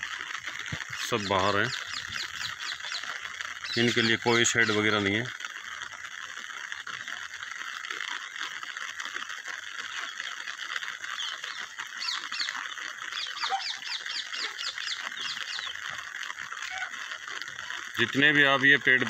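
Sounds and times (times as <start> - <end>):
rain hissing: 0.0 - 19.0
bird short high calls: 11.1 - 15.9, 16.6 - 17.0.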